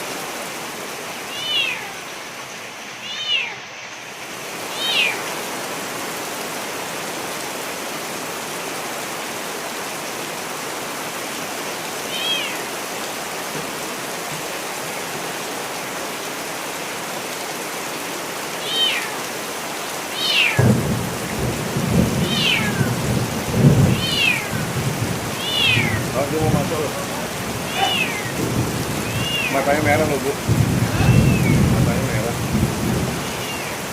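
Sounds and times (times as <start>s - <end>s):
steady rain: 0.0s - 33.9s
cat meowing: 1.3s - 2.0s, 3.0s - 3.6s, 4.7s - 5.3s, 12.0s - 12.7s, 18.6s - 19.2s, 20.1s - 20.6s, 22.2s - 23.0s, 23.9s - 26.2s, 26.8s - 28.4s, 29.0s - 30.2s, 30.8s - 32.2s, 33.1s - 33.9s
thunder rumbling: 20.6s - 33.9s.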